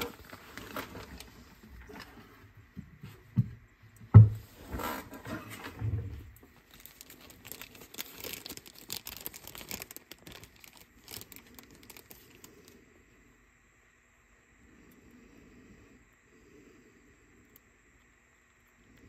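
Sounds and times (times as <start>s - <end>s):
plastic packaging crinkling: 0.0s - 2.0s, 6.4s - 12.8s
small crackles and clicks: 6.3s - 12.8s, 17.4s - 19.0s.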